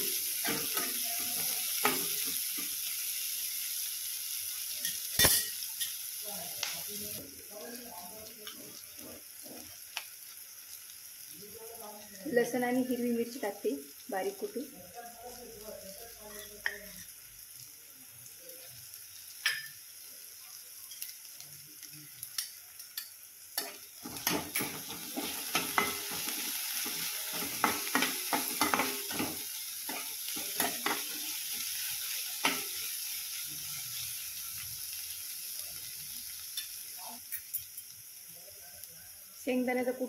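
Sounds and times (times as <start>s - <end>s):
spoon scraping and knocking pan: 0.0s - 2.8s, 19.4s - 19.8s, 22.4s - 32.8s
vegetables sizzling in oil: 0.0s - 40.0s.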